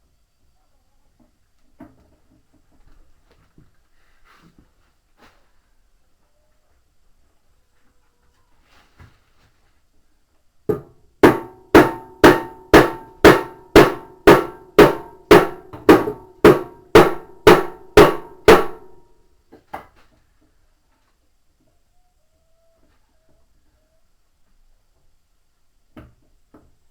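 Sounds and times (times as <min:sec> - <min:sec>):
hammer blows on metal drum: 0:10.7 - 0:19.0.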